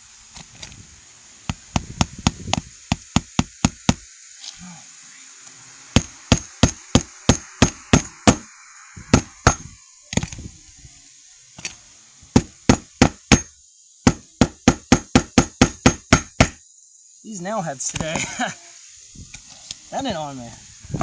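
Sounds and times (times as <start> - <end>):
hammer striking nails: 1.5 - 4.1, 6.0 - 8.5, 9.1 - 10.4, 12.3 - 13.5, 14.1 - 16.6.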